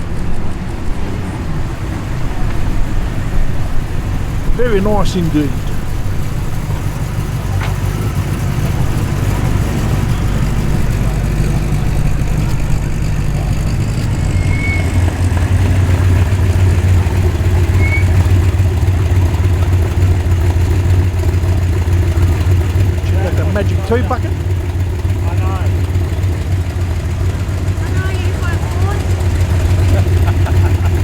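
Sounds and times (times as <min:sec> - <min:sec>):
car engines idling: 0:00.0 - 0:31.0.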